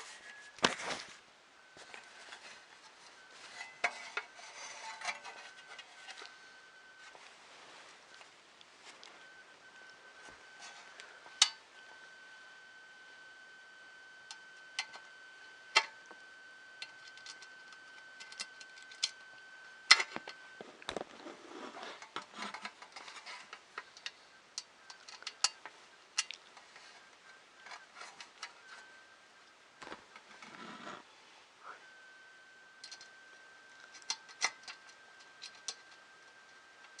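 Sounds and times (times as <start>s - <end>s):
faint high tone: 30.5s - 32.6s.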